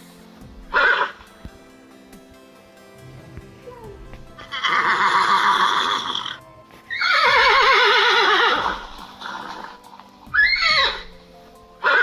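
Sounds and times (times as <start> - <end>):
background music: 0.0 - 12.0
horse whinnying: 4.4 - 11.1.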